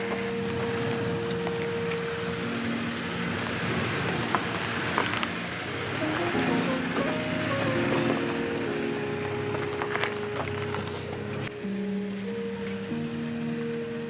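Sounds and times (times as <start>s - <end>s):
pickup engine running low: 0.0s - 14.0s.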